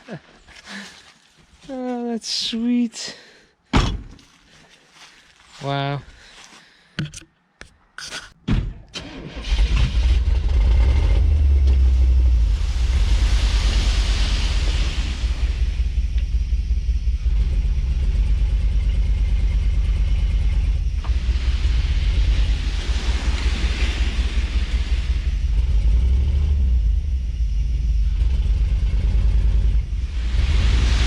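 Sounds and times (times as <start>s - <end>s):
truck engine rumbling: 9.0s - 31.0s
rushing hiss: 12.4s - 16.0s, 21.1s - 25.5s, 30.0s - 31.0s.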